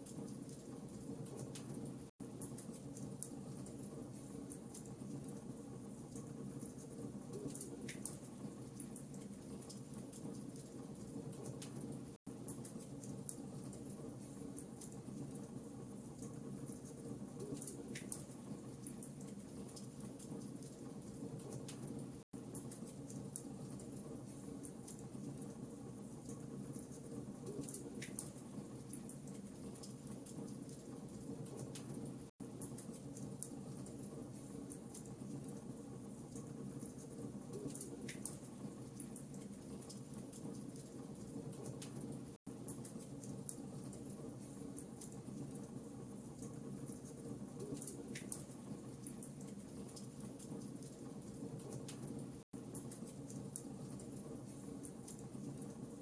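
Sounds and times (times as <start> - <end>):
wood fire crackling: 0.0 - 56.0
fire pops and snaps: 26.3 - 29.1.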